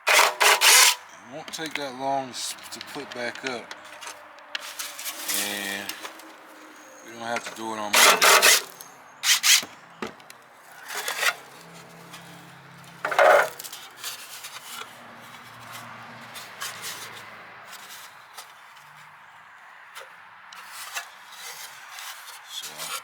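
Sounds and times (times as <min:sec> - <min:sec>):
sheet metal scraping: 0:00.0 - 0:01.1, 0:02.4 - 0:09.7, 0:10.8 - 0:14.5.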